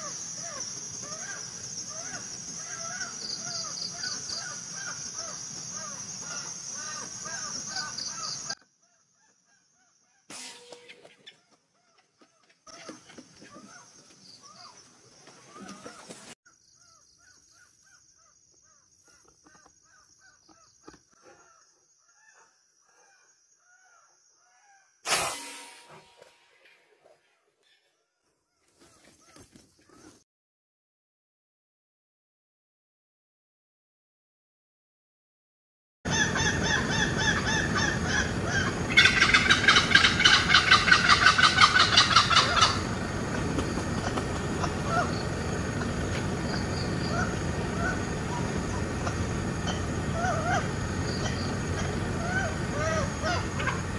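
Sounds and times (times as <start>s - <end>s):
high insect drone: 0.0s - 8.6s, 36.9s - 53.9s
bird calls: 0.0s - 28.0s, 36.1s - 53.9s
fast pulsed bird calls: 36.1s - 43.0s.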